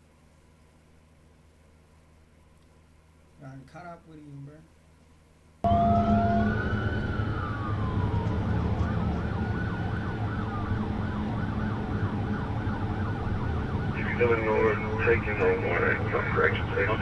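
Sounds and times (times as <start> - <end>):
car engine rumble: 5.7 - 17.0
police siren wailing and yelping: 5.7 - 17.0
road noise: 5.7 - 17.0.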